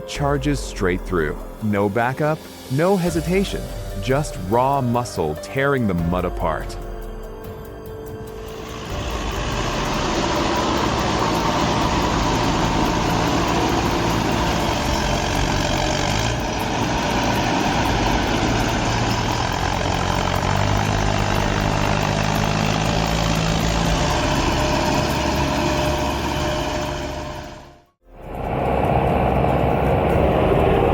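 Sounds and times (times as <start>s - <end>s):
tractor diesel engine under load: 8.2s - 30.9s.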